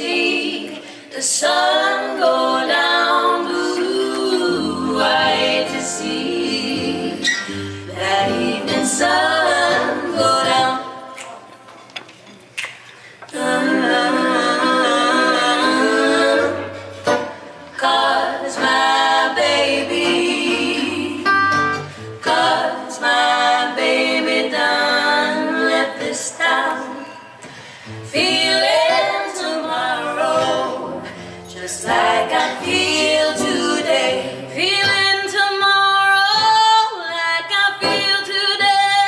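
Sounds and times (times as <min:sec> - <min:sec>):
women singing in harmony: 0:00.0 - 0:11.2, 0:13.3 - 0:39.0.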